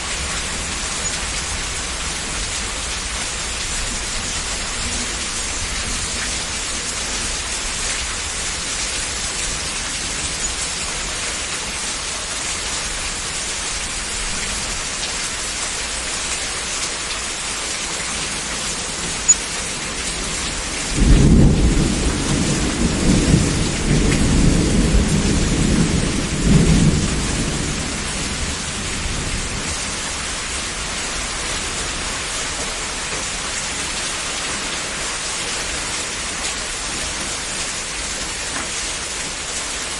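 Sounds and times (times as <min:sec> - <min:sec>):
heavy rain: 0:00.0 - 0:39.9
rolling thunder: 0:20.7 - 0:29.9.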